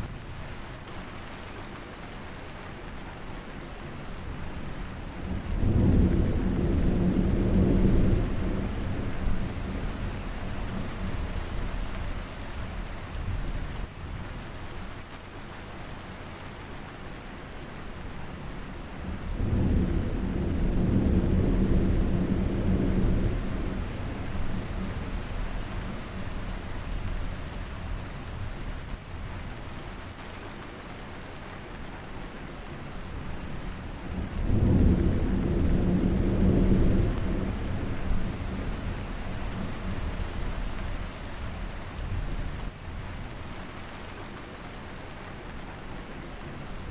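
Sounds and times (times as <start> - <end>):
steady rain falling: 0.0 - 46.9
low rolls of thunder: 5.2 - 13.7, 19.0 - 29.0, 33.2 - 43.2.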